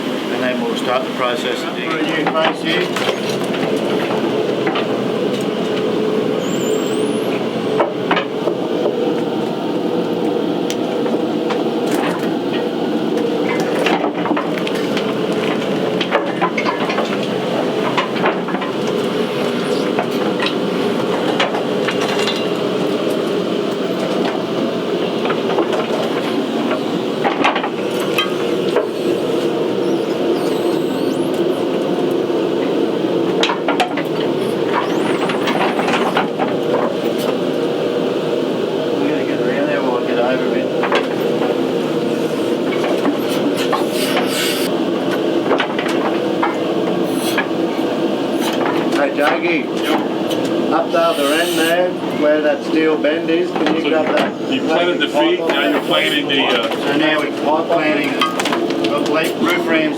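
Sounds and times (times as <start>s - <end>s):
blower roaring: 0.0s - 59.9s
short hissing burst: 43.8s - 44.7s, 51.1s - 51.8s.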